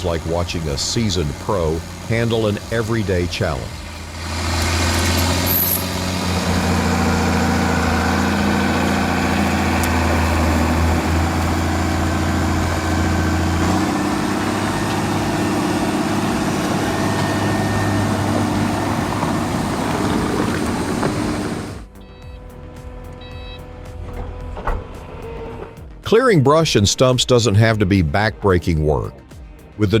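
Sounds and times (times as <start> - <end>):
tractor diesel engine under load: 0.0 - 25.8.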